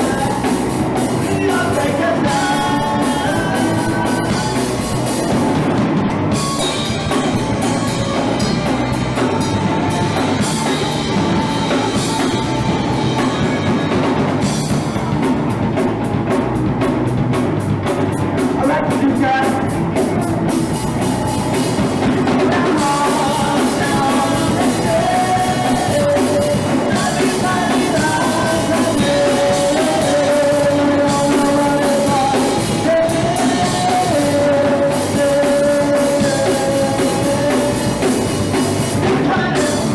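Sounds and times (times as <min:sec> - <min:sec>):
person singing: 0:00.0 - 0:14.7, 0:18.5 - 0:39.9
drum kit beat: 0:00.0 - 0:39.9
punk rock band playing live: 0:00.0 - 0:39.9.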